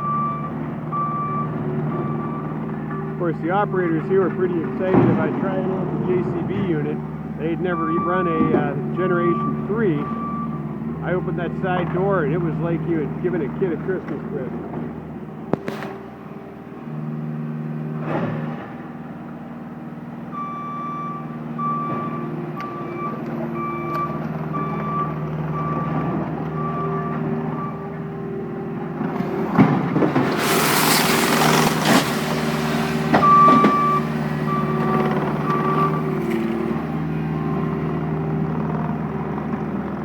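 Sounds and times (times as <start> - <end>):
reversing alarm beeping: 0.0 - 14.1, 20.3 - 28.0, 30.6 - 38.1
diesel engine under load: 0.0 - 40.0
loud burst of rushing noise: 30.1 - 34.6.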